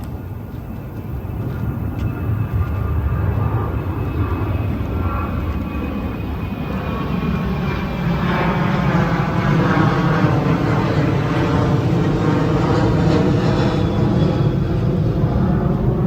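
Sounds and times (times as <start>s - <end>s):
jet aircraft passing overhead: 0.0s - 16.0s.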